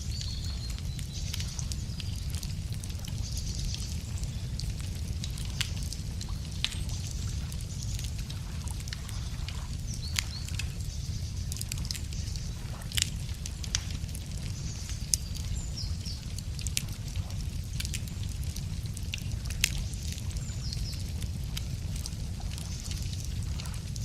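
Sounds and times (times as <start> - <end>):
birds chirping: 0.0 - 16.7
wood fire crackling: 0.0 - 24.0.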